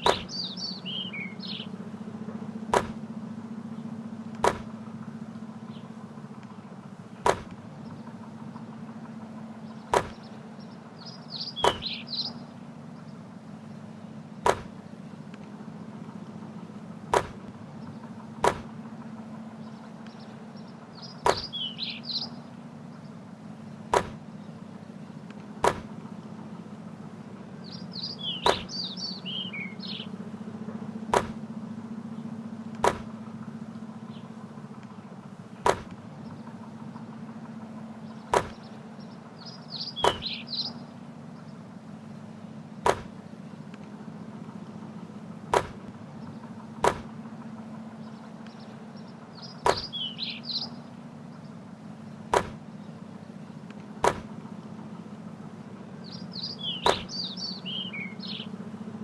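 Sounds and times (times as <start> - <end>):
basketball bouncing: 0.0 - 0.3, 2.7 - 3.0, 4.4 - 4.7, 7.2 - 7.6, 9.9 - 10.3, 14.4 - 14.8, 17.1 - 17.6, 18.4 - 18.8, 21.2 - 21.5, 23.9 - 24.2, 25.6 - 25.9, 28.4 - 28.7, 31.1 - 31.4, 32.8 - 33.1, 35.6 - 36.0, 38.3 - 38.6, 42.8 - 43.2, 45.5 - 46.0, 46.8 - 47.1, 49.6 - 49.9, 52.3 - 52.6, 54.0 - 54.3, 56.8 - 57.1
birds chirping: 0.0 - 59.0
steady low hum: 0.0 - 59.0.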